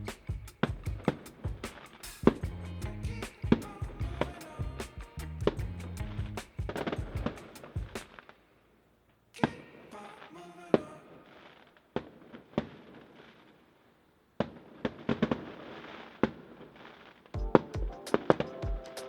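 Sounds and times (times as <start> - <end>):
fireworks crackling: 0.1 - 2.4, 6.4 - 8.6, 9.7 - 19.0
fireworks bangs: 14.4 - 18.6.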